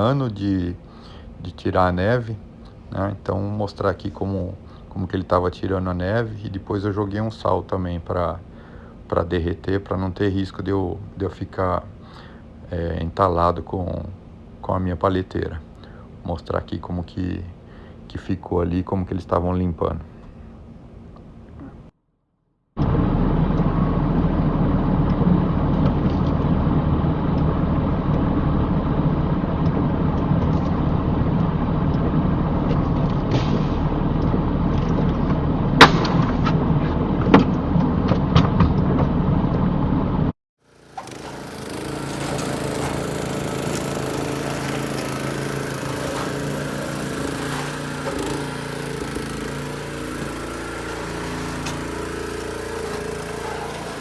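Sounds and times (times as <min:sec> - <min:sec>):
engine running: 0:22.8 - 0:54.0.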